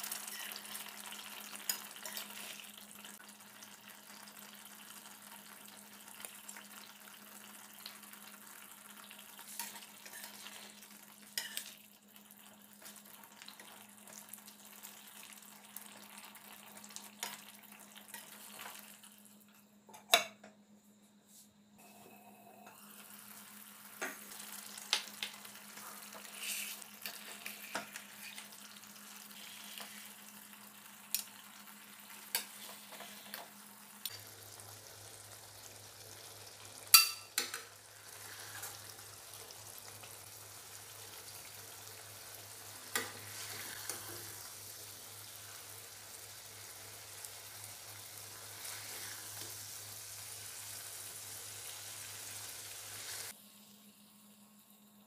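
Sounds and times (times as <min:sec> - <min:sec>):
gravy sizzling in a pan: 0:00.0 - 0:19.8, 0:21.8 - 0:55.0
spatula scraping a pan: 0:00.1 - 0:00.8, 0:09.4 - 0:10.8, 0:11.4 - 0:11.8, 0:25.8 - 0:28.5, 0:38.1 - 0:38.8, 0:42.9 - 0:44.3, 0:48.5 - 0:49.4.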